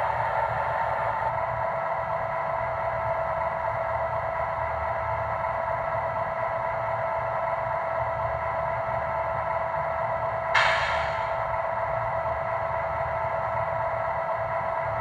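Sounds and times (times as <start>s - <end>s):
short burst of hiss: 10.6s - 11.5s.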